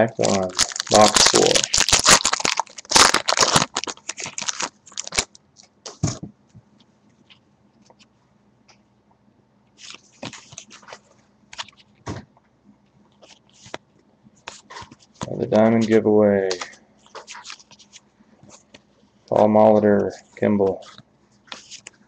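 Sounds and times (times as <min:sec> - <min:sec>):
wrapper crinkling and crackling: 0:00.0 - 0:05.7
cards clicking and rustling: 0:00.2 - 0:05.3.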